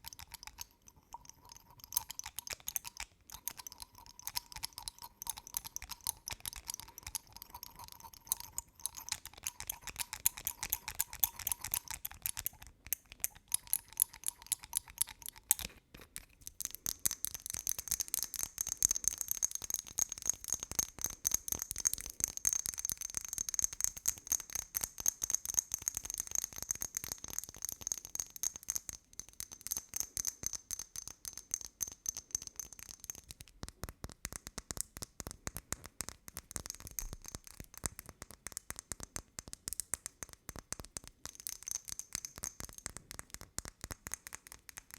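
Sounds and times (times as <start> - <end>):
rapid tapping and clicking: 1.4 - 15.8.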